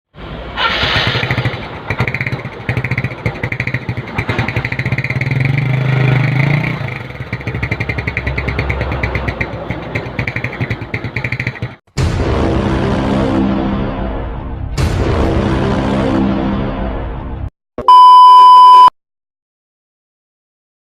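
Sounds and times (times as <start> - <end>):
scooter engine burbling and revving: 0.4 - 11.9.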